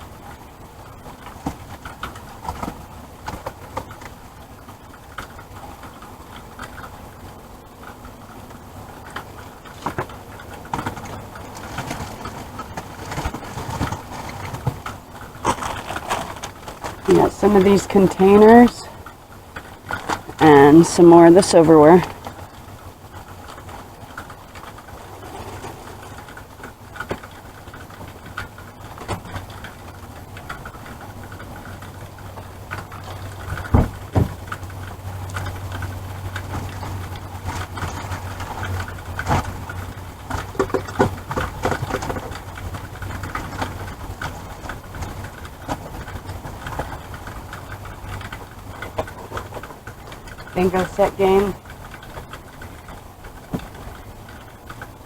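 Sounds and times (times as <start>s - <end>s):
items being handled and set down: 9.8s - 18.6s.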